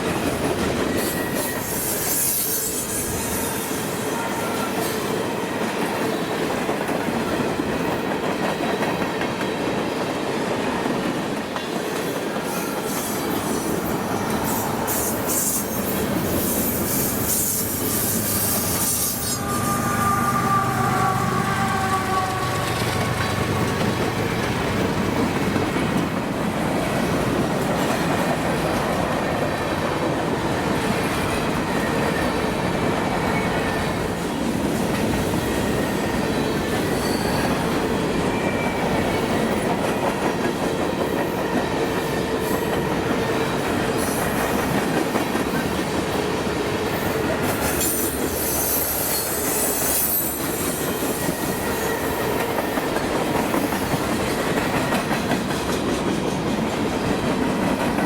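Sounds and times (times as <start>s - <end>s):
train wheels squealing: 0.0s - 6.6s, 11.6s - 24.6s, 31.1s - 34.2s, 35.1s - 56.5s
train wheels clicking over rail joints: 34.8s - 58.0s.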